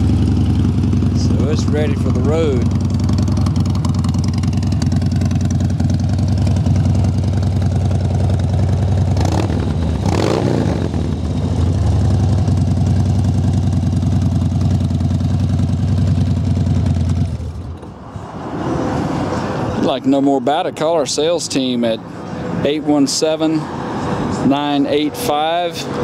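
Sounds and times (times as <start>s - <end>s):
motorcycle engine idling: 0.0s - 17.8s.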